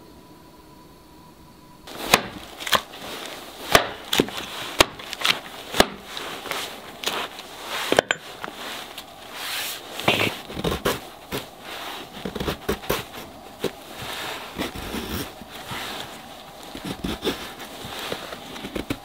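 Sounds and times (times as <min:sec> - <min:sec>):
sharp cracks: 0:01.9 - 0:03.0, 0:03.6 - 0:07.2
clicks and rustling of handling: 0:01.9 - 0:19.0.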